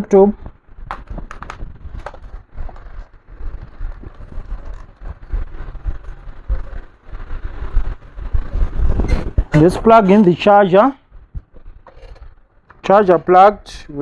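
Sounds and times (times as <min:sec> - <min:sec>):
low rumble: 0:00.4 - 0:10.0.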